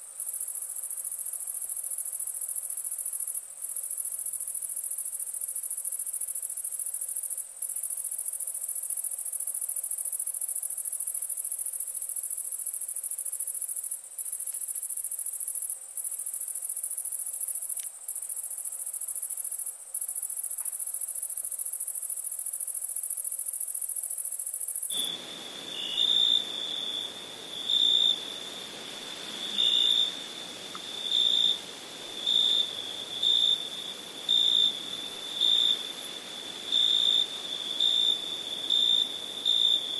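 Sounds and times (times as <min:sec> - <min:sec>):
night insects trilling: 0:00.2 - 0:39.9
lower shrill insect tone: 0:24.8 - 0:39.9.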